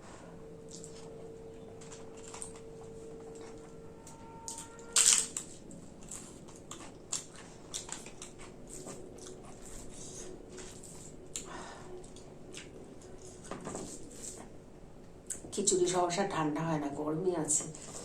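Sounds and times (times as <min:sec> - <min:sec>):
person crunching crisp papad: 0:01.8 - 0:03.7, 0:04.5 - 0:11.5.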